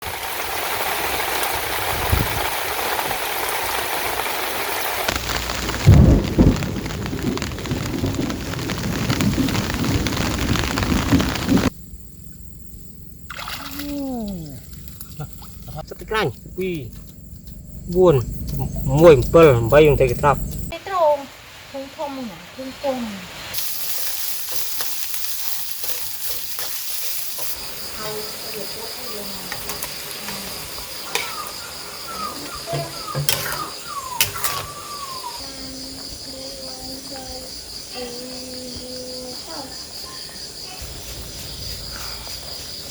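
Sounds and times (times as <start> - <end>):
heavy rain pouring: 0.0 - 11.8, 17.9 - 39.9
thunder rumbling: 0.2 - 13.3, 16.4 - 20.7
loud thunderclap: 1.2 - 4.2, 4.9 - 11.8
high steady insect tone: 3.3 - 42.9.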